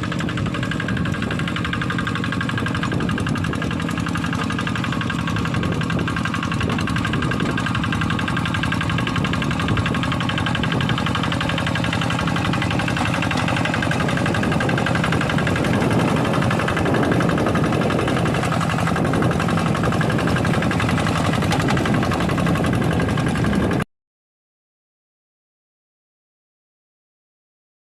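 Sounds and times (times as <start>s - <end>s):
diesel engine running under load: 0.0s - 23.9s.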